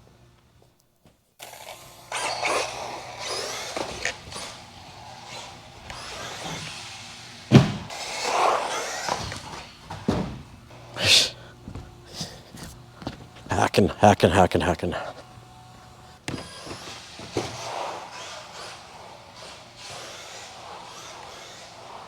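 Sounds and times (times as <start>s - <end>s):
rc car motor whine: 1.4s - 13.5s, 14.9s - 22.0s
rc car landing thud: 1.7s - 10.5s, 16.2s - 18.8s, 19.4s - 22.0s.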